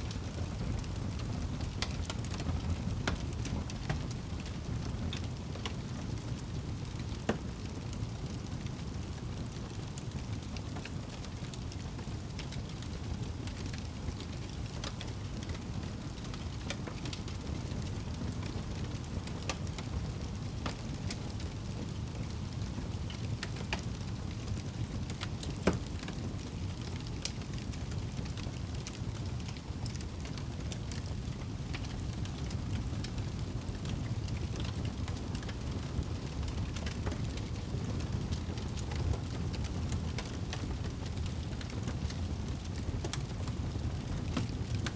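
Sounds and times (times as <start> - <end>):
fire crackling and popping: 0.0 - 44.9
low rumble of flames: 0.0 - 44.9.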